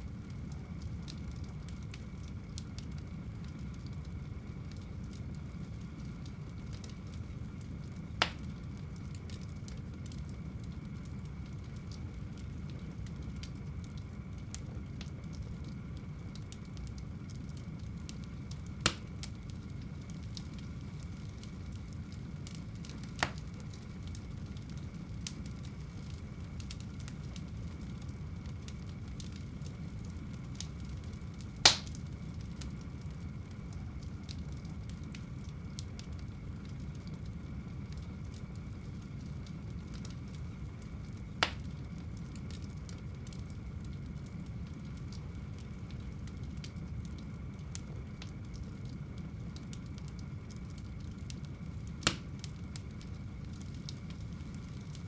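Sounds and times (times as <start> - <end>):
fire crackling: 0.0 - 55.0
fire rumbling: 0.0 - 55.0
fire sharp pops: 6.7 - 11.2, 17.6 - 37.2, 39.5 - 44.1, 50.2 - 55.0.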